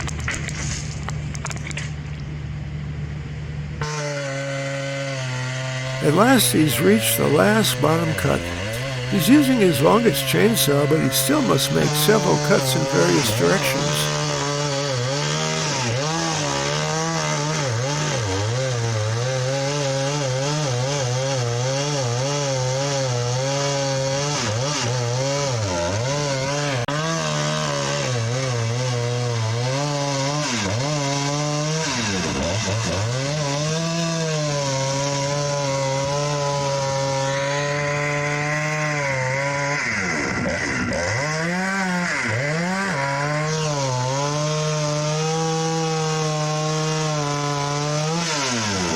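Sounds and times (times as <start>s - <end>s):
chainsaw cutting wood: 3.8s - 6.0s, 8.5s - 9.1s, 14.1s - 48.9s.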